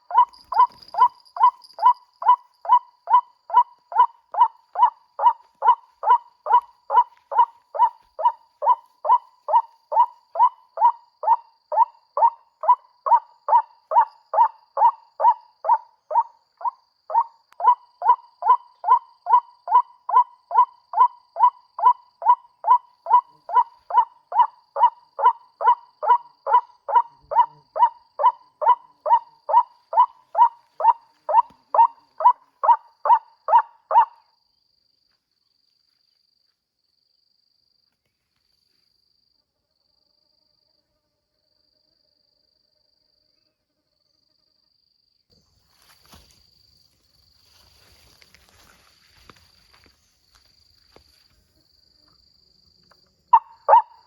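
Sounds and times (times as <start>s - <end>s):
waterhen call: 0.0s - 21.1s, 21.8s - 34.1s, 53.3s - 54.0s.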